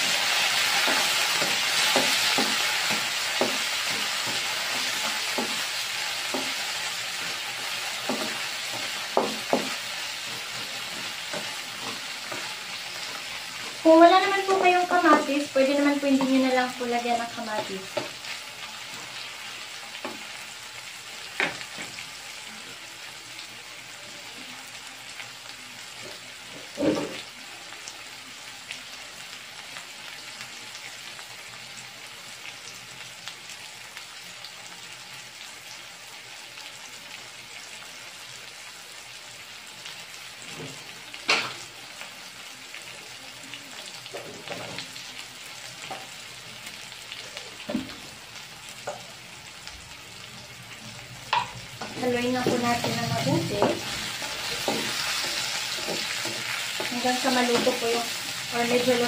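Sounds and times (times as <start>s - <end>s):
vegetables sizzling in oil: 0.0s - 59.0s.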